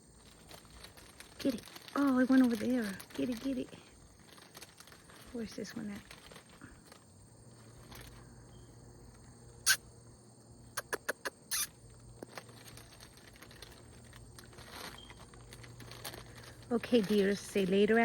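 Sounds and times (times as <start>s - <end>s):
short rustle: 0.2s - 8.4s, 11.5s - 18.0s
sharp clicks and taps: 10.8s - 11.4s.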